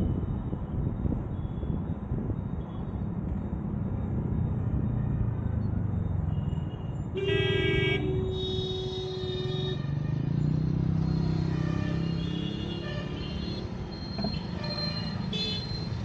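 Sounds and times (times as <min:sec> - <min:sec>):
traffic engines running: 0:00.0 - 0:16.0
vehicle horn honking: 0:07.2 - 0:10.2.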